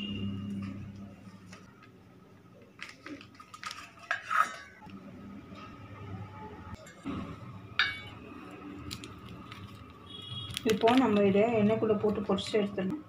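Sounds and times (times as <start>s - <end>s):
metal kitchenware clinking: 3.7s - 4.9s, 7.7s - 8.3s.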